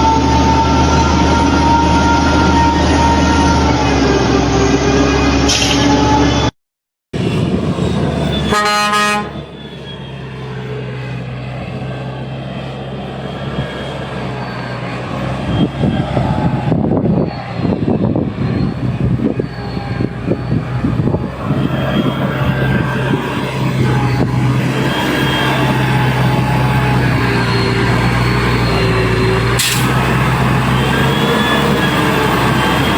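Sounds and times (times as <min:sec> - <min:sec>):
diesel engine labouring: 0:00.0 - 0:06.5, 0:07.2 - 0:32.9
truck horn toot: 0:08.2 - 0:10.1, 0:28.5 - 0:32.9.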